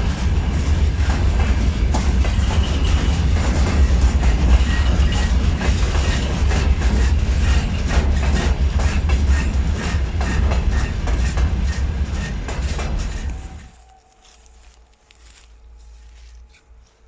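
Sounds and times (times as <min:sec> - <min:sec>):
train rumbling past: 0:00.0 - 0:17.0
wheels clicking over rail joints: 0:01.0 - 0:14.0.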